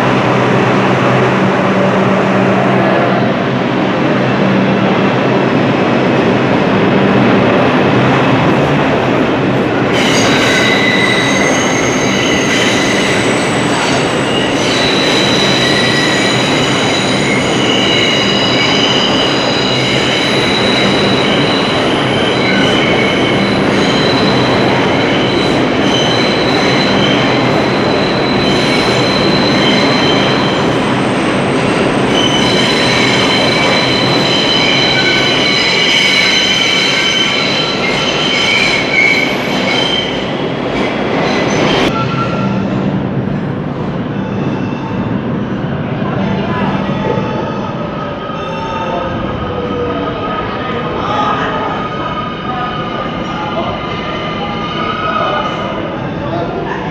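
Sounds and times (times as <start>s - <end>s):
train rumbling on rails: 0.0s - 56.9s
train wheels squealing: 10.0s - 30.7s, 32.1s - 40.3s.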